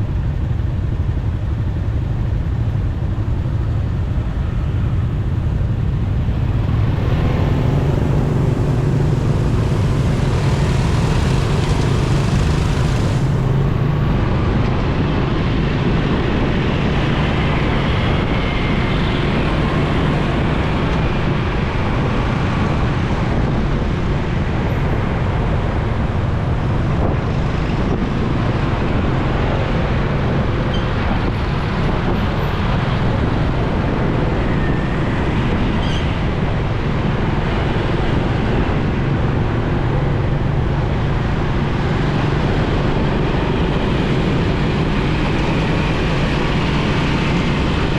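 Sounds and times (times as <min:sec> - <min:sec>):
motorcycle engine running: 0:00.0 - 0:14.8, 0:36.6 - 0:47.9
passing traffic: 0:00.0 - 0:47.9
wind and road noise: 0:00.0 - 0:47.9.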